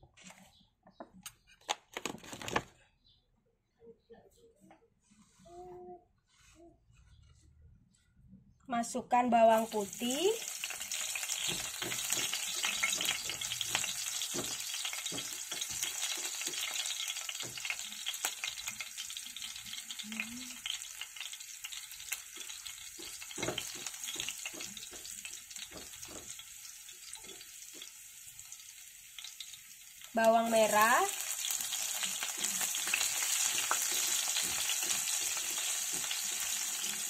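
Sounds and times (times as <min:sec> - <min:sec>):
garlic sizzling in oil: 0:09.4 - 0:37.0
spatula scraping and knocking pan: 0:11.2 - 0:17.8, 0:22.4 - 0:26.5, 0:32.2 - 0:37.0.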